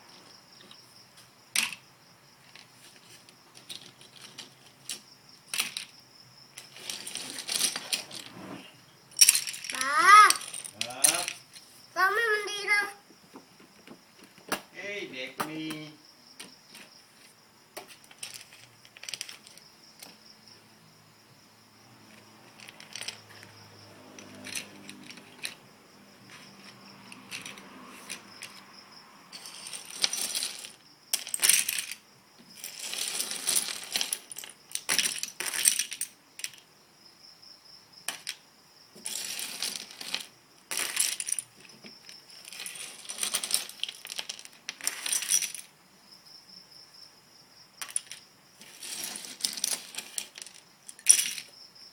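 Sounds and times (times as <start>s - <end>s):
plastic bricks clattering: 1.6s - 1.8s, 2.4s - 6.0s, 6.6s - 8.4s, 9.1s - 11.6s, 17.8s - 20.2s, 22.1s - 23.6s, 24.2s - 25.6s, 26.3s - 28.7s, 29.4s - 36.7s, 38.1s - 38.4s, 39.0s - 45.7s, 47.8s - 51.5s.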